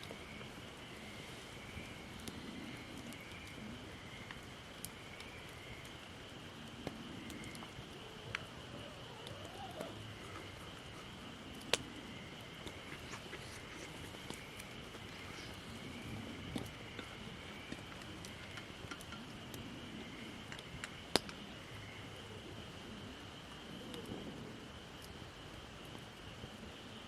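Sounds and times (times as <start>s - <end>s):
campfire crackling: 0.0s - 27.0s
sharp pops of fire: 20.5s - 21.4s.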